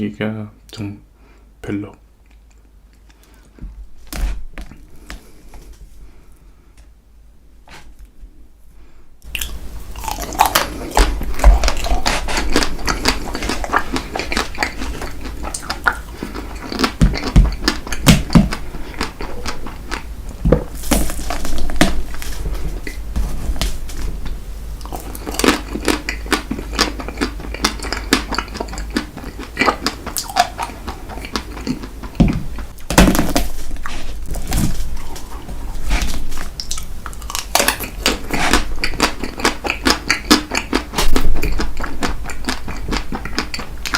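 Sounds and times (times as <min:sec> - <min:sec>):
wet chewing and mouth smacks: 0:09.2 - 0:22.2, 0:24.8 - 0:32.9, 0:36.0 - 0:43.9.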